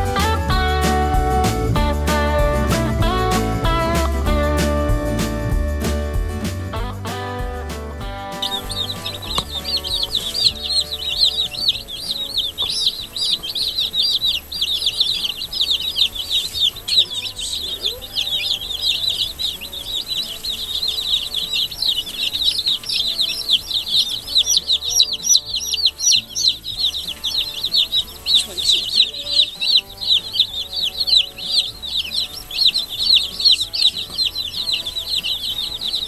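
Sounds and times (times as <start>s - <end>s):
chicks peeping: 8.1s - 36.0s.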